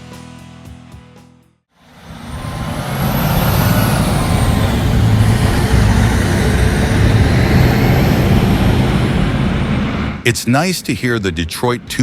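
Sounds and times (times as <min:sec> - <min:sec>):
diesel truck engine running hard: 0:01.8 - 0:10.2.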